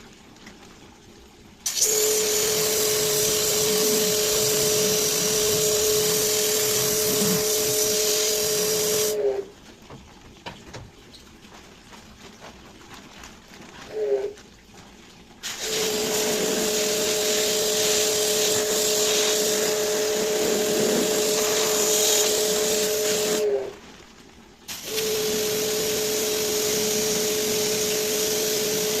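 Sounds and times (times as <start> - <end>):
strong hiss: 1.6 - 9.4, 15.4 - 23.7.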